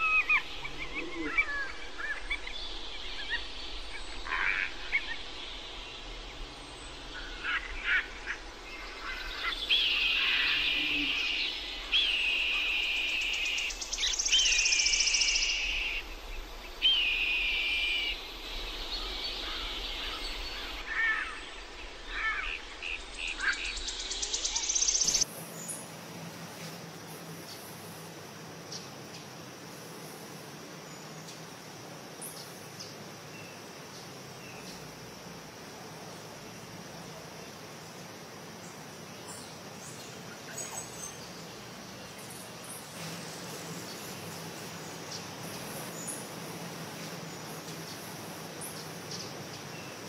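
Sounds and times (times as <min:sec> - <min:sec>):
birds chirping: 0:00.0 - 0:26.8.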